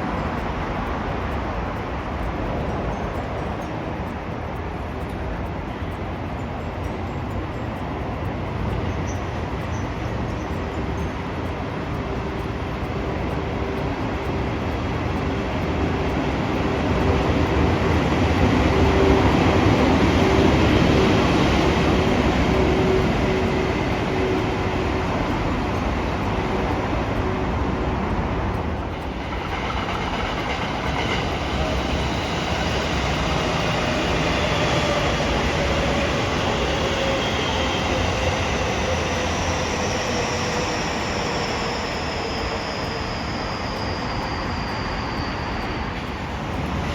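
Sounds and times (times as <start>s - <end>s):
steady whine: 0.0s - 46.9s
train running by: 0.0s - 46.9s
whining tones falling in pitch: 9.6s - 46.9s.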